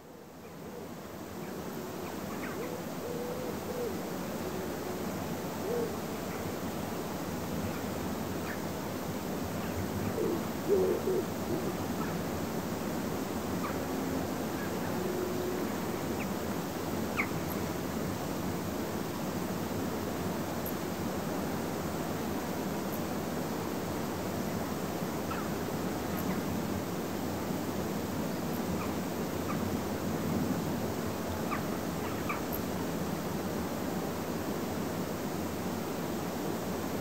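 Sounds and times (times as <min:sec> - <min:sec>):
steady forest hiss: 0:00.0 - 0:37.0
distant low bird hooting: 0:10.1 - 0:11.8.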